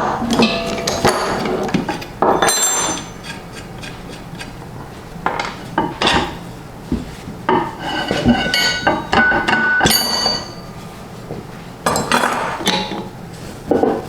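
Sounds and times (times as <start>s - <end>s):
metal clanking and scraping: 0.0s - 14.0s
sharp metal clinks: 9.8s - 10.7s.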